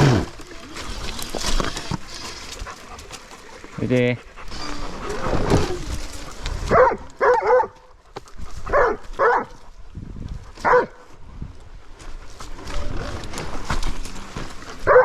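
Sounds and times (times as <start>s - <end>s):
dog barking: 6.7s - 7.8s, 8.7s - 9.6s, 10.6s - 11.0s.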